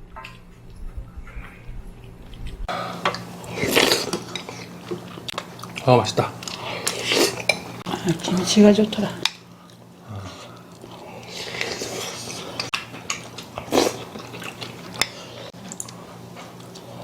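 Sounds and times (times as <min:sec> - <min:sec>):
person chewing food: 0:02.0 - 0:08.0, 0:09.6 - 0:17.0.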